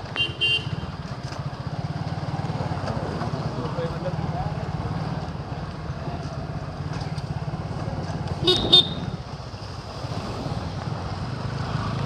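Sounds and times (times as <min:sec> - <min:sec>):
motorcycle engine running: 0:00.1 - 0:12.0
short horn beeps: 0:08.4 - 0:09.2.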